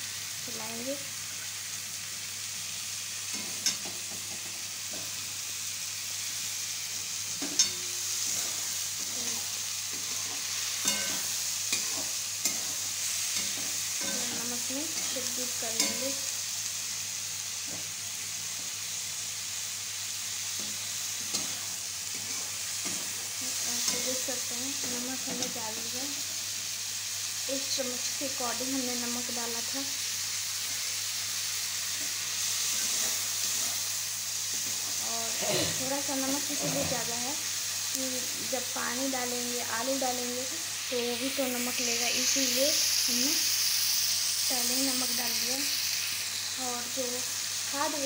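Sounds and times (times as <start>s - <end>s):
onions frying in hot oil: 0.0s - 48.0s
metal spatula scraping a pan: 7.3s - 16.2s, 20.5s - 23.2s, 32.0s - 33.9s.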